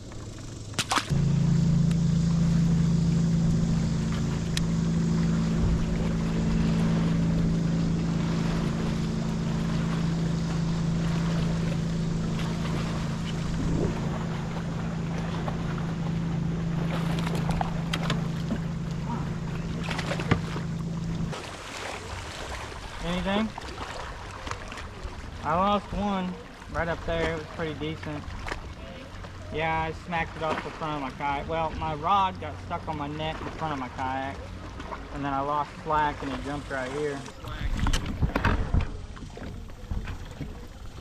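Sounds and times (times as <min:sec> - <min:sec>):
electric motor humming: 0:00.1 - 0:21.4.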